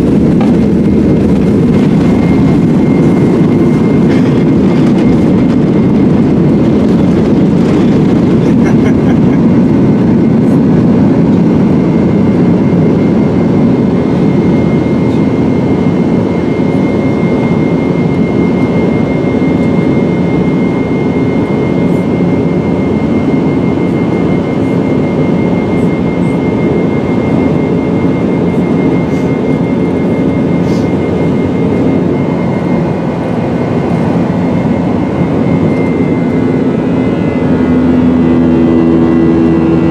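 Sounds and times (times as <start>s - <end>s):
thin high whine: 0.0s - 8.9s
vehicle mechanical roar: 0.0s - 39.9s.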